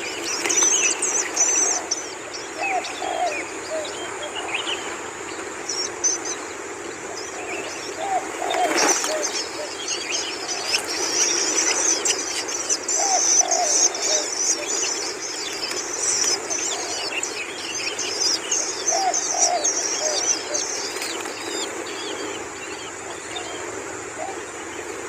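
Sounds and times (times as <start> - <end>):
nestlings begging with high chirping: 7.2 - 23.6.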